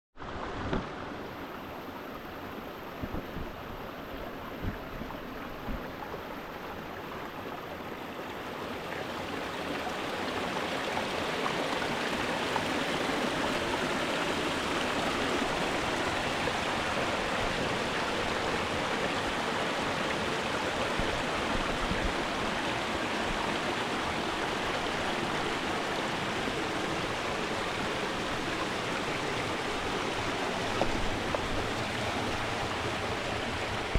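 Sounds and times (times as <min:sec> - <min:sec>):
stream rushing over rocks: 0:00.2 - 0:33.9.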